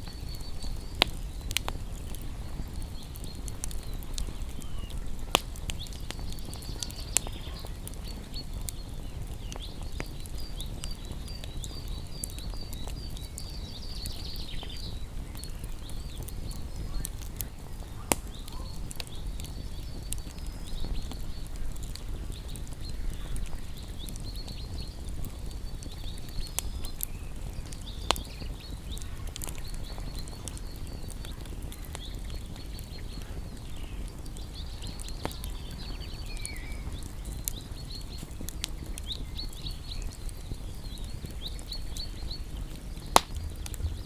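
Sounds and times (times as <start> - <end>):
small birds chirping: 0.0 - 44.0
wood fire crackling and popping: 0.0 - 44.0.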